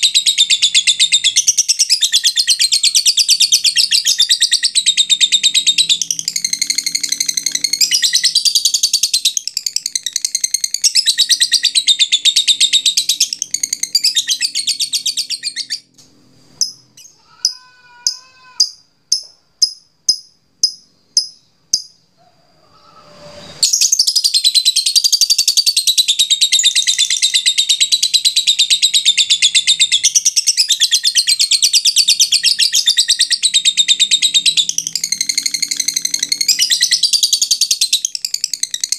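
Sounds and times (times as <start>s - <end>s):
bird chattering trill: 0.0s - 15.8s, 16.6s - 22.1s
sharp ticking chirps: 0.0s - 15.8s, 16.6s - 22.1s, 24.0s - 38.9s.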